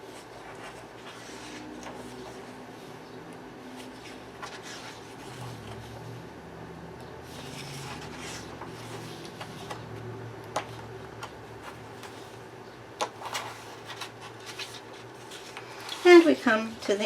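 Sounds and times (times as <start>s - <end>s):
paper pages rustling: 0.0s - 2.6s, 3.7s - 6.0s, 7.2s - 12.4s, 13.0s - 16.5s.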